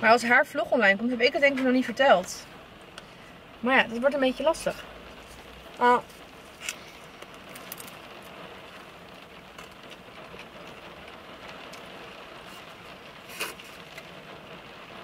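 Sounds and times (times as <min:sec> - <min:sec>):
rain on a car roof: 0:00.0 - 0:15.0.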